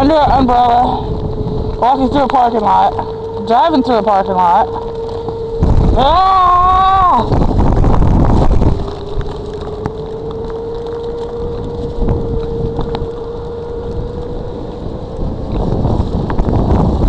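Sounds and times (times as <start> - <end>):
steady mid-pitched whine: 0.0 - 17.0
wind buffeting microphone: 0.0 - 17.0
sleet ticking on umbrella: 4.7 - 16.5.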